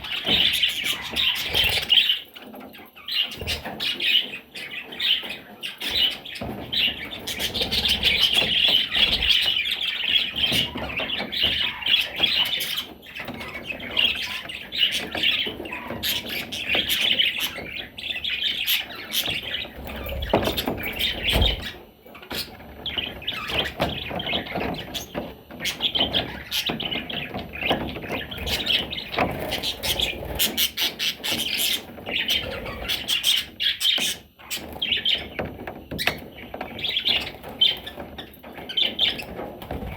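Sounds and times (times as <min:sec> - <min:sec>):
budgerigar chattering: 0:00.0 - 0:02.1.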